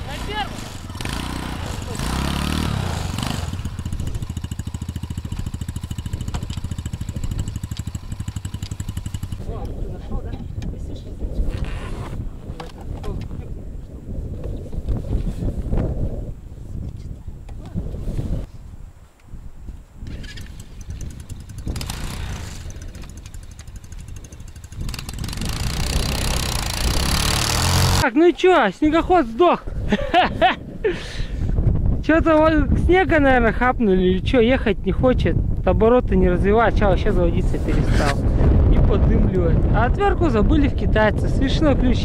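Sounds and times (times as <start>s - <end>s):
snowmobile engine at low revs: 0.0s - 9.8s, 20.8s - 28.0s.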